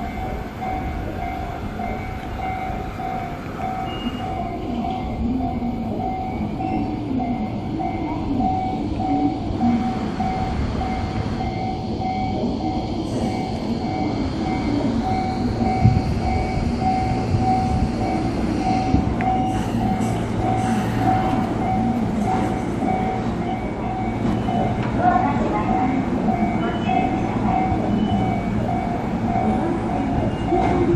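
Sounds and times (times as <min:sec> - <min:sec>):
electric train rumble: 0:00.0 - 0:30.9.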